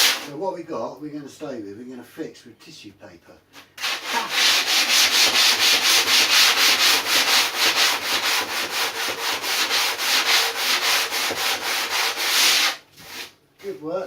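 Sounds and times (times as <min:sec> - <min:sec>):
sandpaper scraping back and forth: 0:00.0 - 0:00.3, 0:03.8 - 0:13.4.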